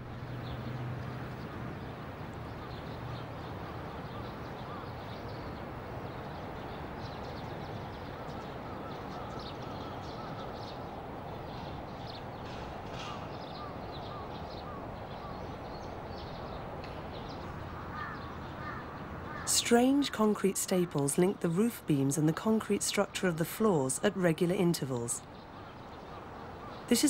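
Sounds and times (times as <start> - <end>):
outdoor background noise: 0.0 - 27.0
faint bird calls: 7.3 - 19.5.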